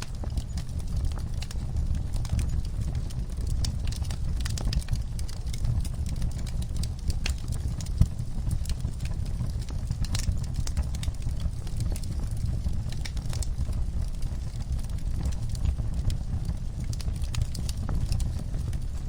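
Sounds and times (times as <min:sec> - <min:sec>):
fire crackling and snapping: 0:00.0 - 0:19.0
low rumble of flames: 0:00.0 - 0:19.0.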